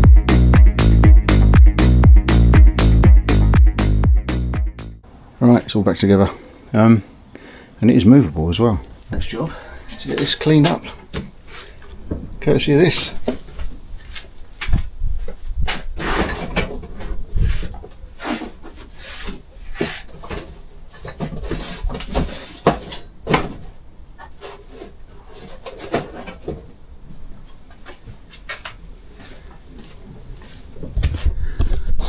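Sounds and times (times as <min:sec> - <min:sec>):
scraping strokes: 0:15.7 - 0:23.0.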